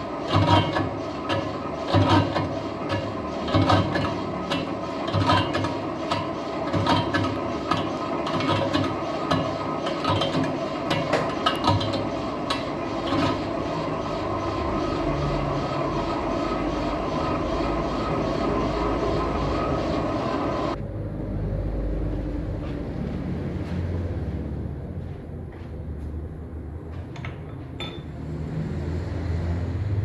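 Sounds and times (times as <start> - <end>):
metal lathe humming: 0.0 - 20.8.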